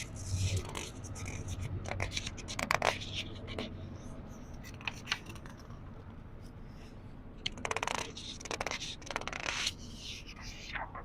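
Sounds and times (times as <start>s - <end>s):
book pages turning: 0.1s - 3.7s, 4.6s - 5.8s.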